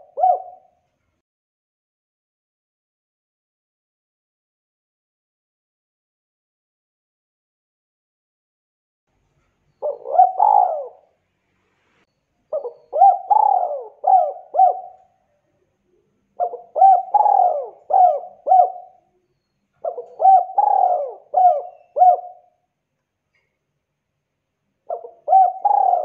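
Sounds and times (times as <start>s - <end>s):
dove cooing: 0.0s - 0.8s, 9.8s - 11.2s, 12.5s - 15.2s, 15.9s - 19.2s, 19.8s - 22.6s, 24.9s - 26.0s.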